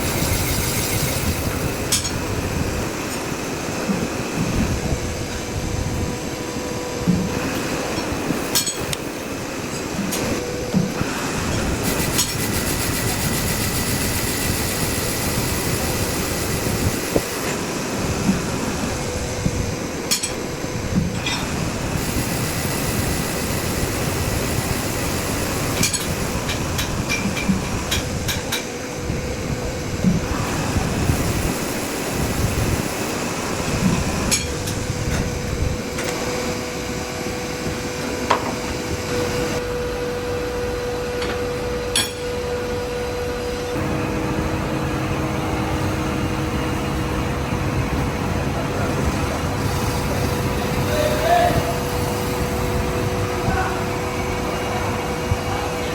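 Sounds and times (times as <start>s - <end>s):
machinery humming: 0.0s - 55.9s.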